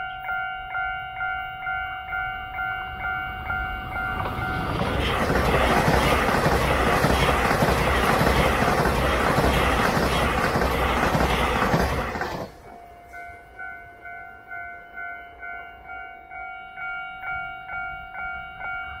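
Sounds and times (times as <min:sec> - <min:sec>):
train wheels rushing on rails: 0:03.8 - 0:12.9.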